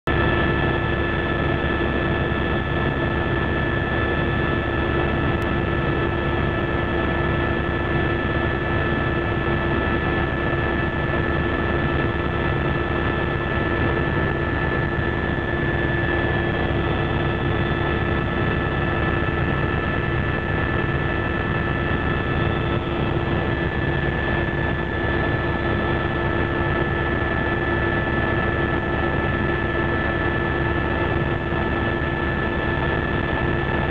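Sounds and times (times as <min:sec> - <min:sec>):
helicopter engine and rotor drone: 0:00.1 - 0:33.9
steady whining tones: 0:00.1 - 0:33.9.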